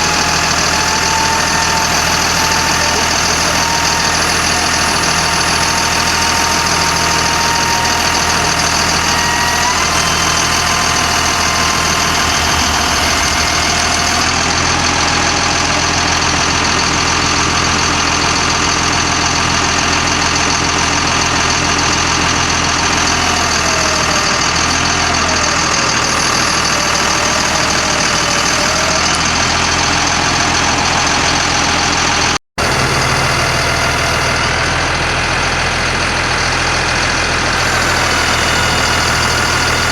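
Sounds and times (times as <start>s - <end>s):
thin whine: 0.0s - 17.2s, 37.6s - 39.9s
diesel truck engine running: 0.0s - 39.9s.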